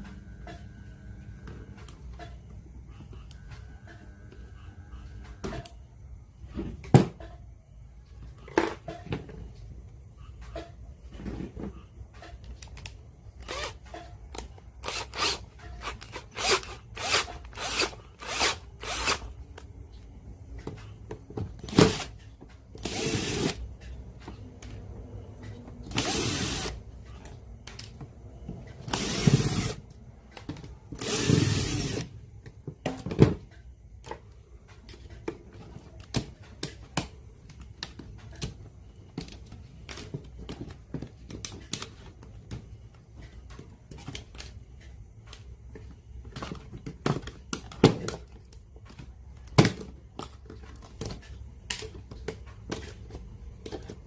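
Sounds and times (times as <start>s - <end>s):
power tool running in bursts: 22.9s - 23.6s, 25.9s - 26.8s, 31.0s - 32.1s.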